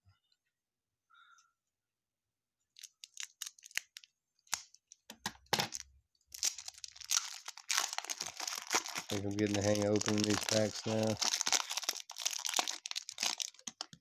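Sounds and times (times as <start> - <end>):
wrapper crinkling: 2.8 - 4.6, 5.6 - 14.0.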